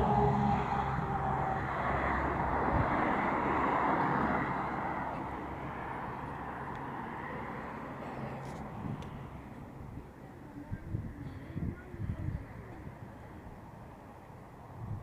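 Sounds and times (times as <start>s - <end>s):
car passing by: 0.0s - 9.9s.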